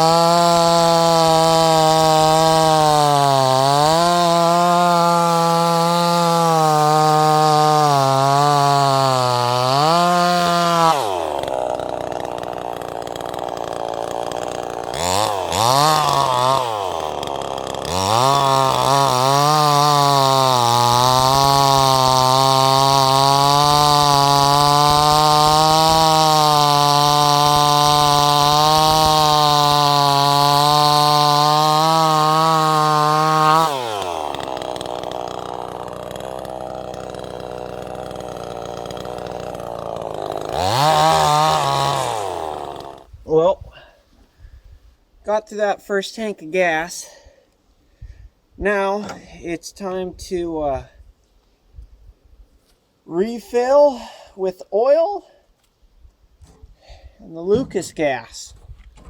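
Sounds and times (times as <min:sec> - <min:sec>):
chainsaw running: 0:00.0 - 0:43.1.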